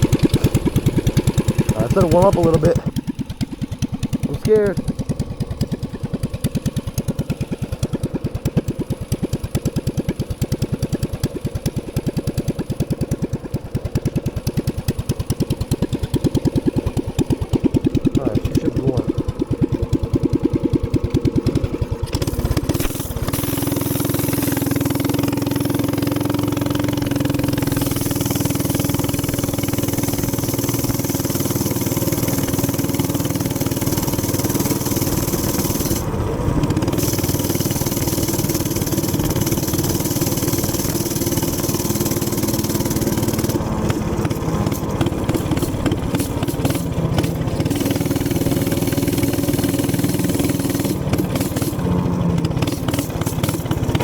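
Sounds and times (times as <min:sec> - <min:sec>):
minibike engine idling and running: 0:00.0 - 0:54.0
hiss: 0:22.2 - 0:36.1, 0:36.7 - 0:43.6, 0:44.2 - 0:51.8, 0:52.6 - 0:54.0.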